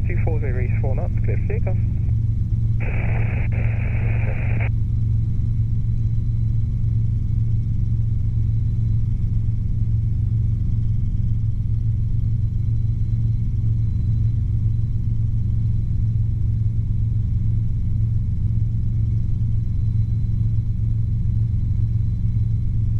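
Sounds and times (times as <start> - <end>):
radio hiss: 0.0 - 2.1, 2.8 - 4.7
helicopter engine and rotor drone: 0.0 - 22.9.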